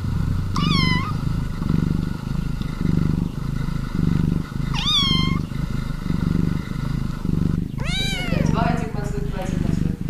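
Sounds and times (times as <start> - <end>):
cat purring: 0.0 - 10.0.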